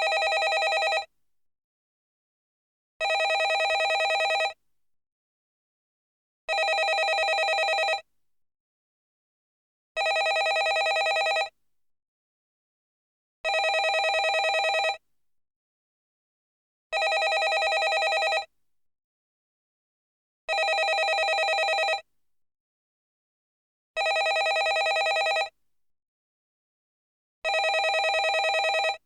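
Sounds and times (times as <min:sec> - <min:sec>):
telephone ringing: 0:00.0 - 0:01.1, 0:03.0 - 0:04.6, 0:06.5 - 0:08.0, 0:10.0 - 0:11.5, 0:13.5 - 0:15.0, 0:17.0 - 0:18.5, 0:20.5 - 0:22.0, 0:24.0 - 0:25.5, 0:27.5 - 0:29.0.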